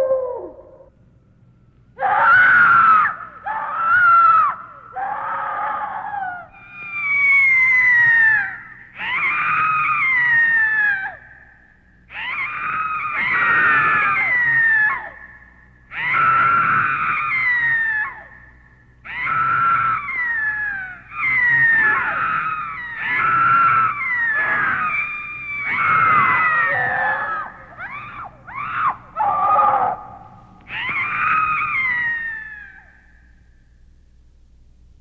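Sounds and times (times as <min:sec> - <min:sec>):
high-pitched voice screaming: 0:19.1 - 0:32.9.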